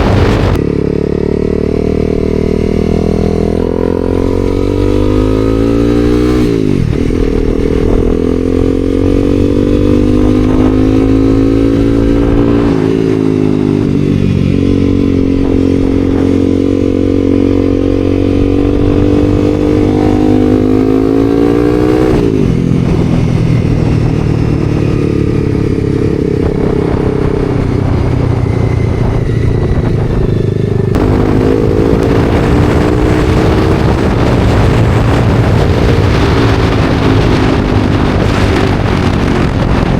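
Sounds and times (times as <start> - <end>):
wind rush on microphone: 0.0 - 1.4, 2.0 - 39.9
motorcycle engine accelerating: 0.0 - 39.9.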